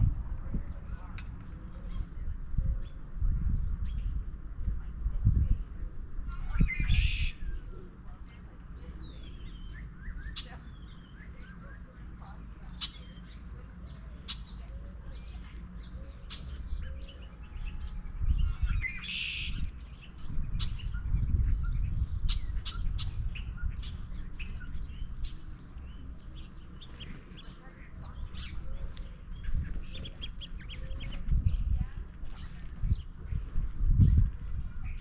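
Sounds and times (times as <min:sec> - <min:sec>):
small songbirds chirping: 0:00.0 - 0:35.0
steady low rumble: 0:00.0 - 0:35.0.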